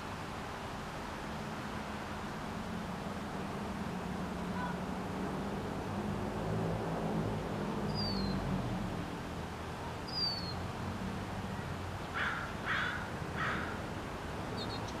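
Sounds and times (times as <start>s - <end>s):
bird high whistles: 8.0s - 8.4s
bird harsh caws: 12.1s - 13.8s.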